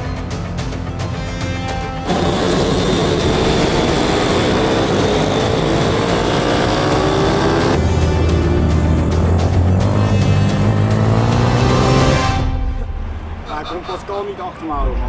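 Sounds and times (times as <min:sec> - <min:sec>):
music: 0:00.0 - 0:14.0
motorbike engines revving: 0:02.0 - 0:15.0.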